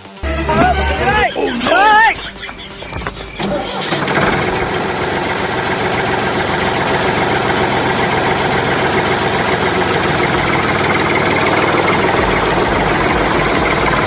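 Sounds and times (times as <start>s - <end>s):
tractor engine idling: 0.0s - 14.0s.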